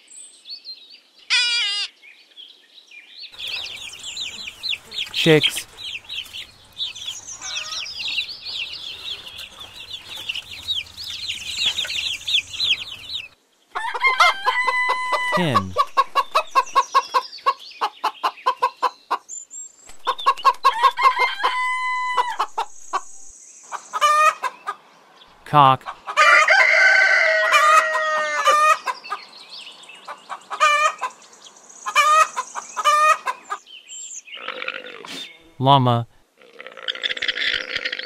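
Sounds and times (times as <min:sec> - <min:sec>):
chicks peeping: 0:03.4 - 0:19.2, 0:19.9 - 0:24.8
hen clucking: 0:03.4 - 0:19.3, 0:19.9 - 0:24.8, 0:25.8 - 0:29.3, 0:30.0 - 0:31.2, 0:31.9 - 0:33.6.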